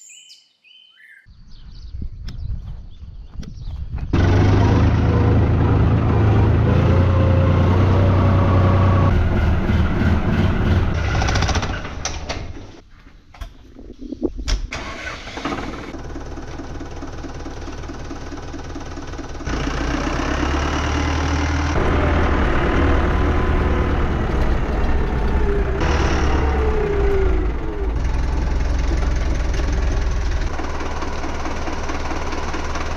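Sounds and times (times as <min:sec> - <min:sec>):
vehicle engine running: 0:04.1 - 0:11.7, 0:15.4 - 0:32.9
engine starting and idling: 0:04.2 - 0:06.5, 0:09.1 - 0:12.8, 0:14.7 - 0:32.9.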